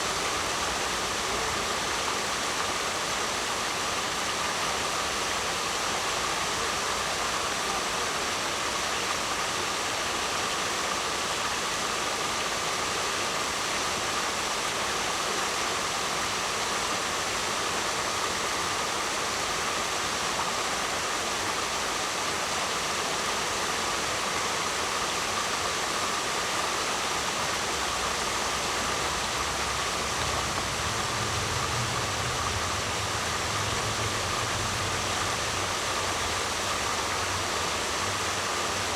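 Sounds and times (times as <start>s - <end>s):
waterfall rushing: 0.0s - 38.9s
low rumble: 28.0s - 36.9s.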